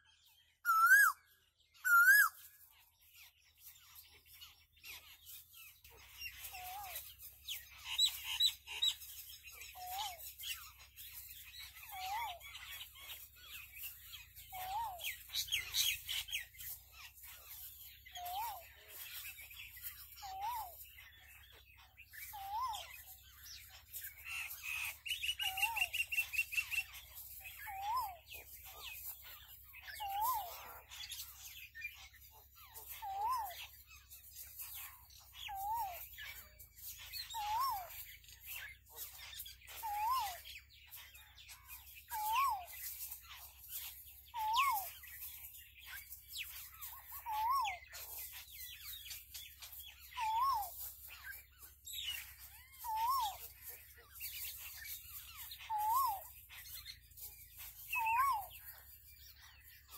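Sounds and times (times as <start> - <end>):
high bird chirps: 0.0 - 59.9.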